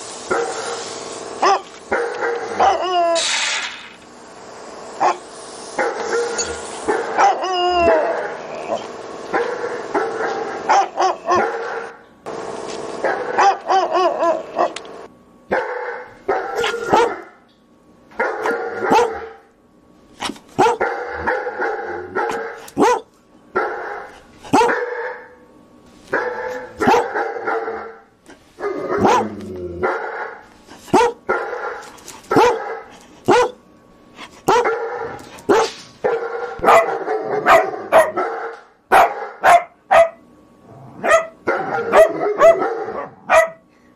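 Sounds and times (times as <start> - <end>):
dog barking: 1.4 - 2.9, 5.8 - 8.1, 9.3 - 12.0, 13.0 - 14.8, 15.5 - 17.4, 18.2 - 19.4, 20.6 - 25.4, 26.1 - 28.0, 28.6 - 33.6, 34.5 - 40.2, 41.0 - 43.6.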